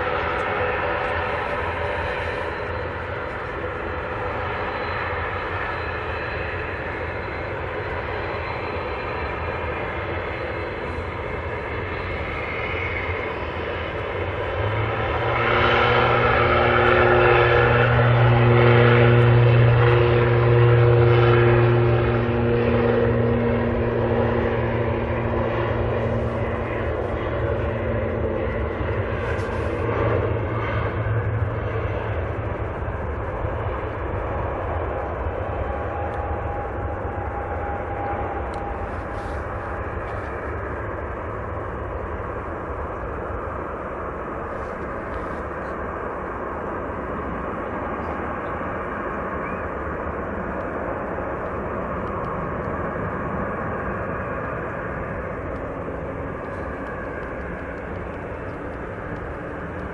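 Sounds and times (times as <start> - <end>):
propeller airliner passing: 0.0 - 59.9.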